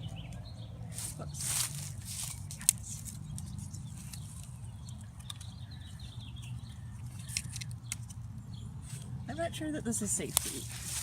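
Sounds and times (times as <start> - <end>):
parrot chewing leaves and twigs: 1.1 - 5.6.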